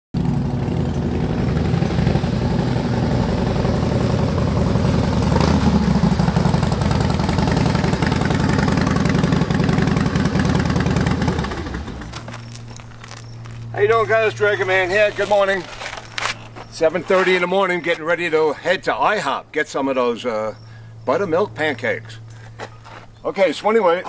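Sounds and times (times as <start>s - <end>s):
motorcycle engine idling: 0.2s - 17.6s.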